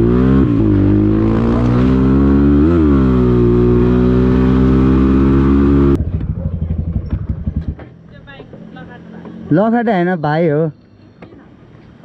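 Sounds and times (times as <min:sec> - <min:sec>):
dirt bike engine running: 0:00.0 - 0:08.0.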